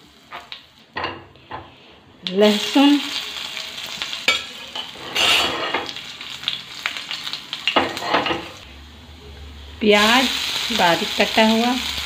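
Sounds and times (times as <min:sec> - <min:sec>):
food sizzling in hot oil: 0:00.0 - 0:12.0
spatula scraping pan: 0:04.3 - 0:06.0.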